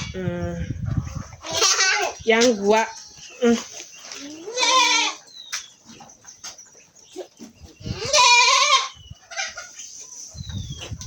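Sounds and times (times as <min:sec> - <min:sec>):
goat bleating: 0:01.4 - 0:02.2, 0:04.3 - 0:05.2, 0:07.9 - 0:09.6.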